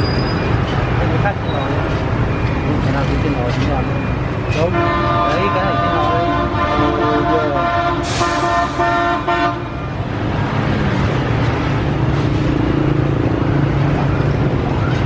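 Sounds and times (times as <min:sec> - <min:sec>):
engine and traffic noise: 0:00.0 - 0:15.0
vehicle horn honking: 0:04.6 - 0:09.8.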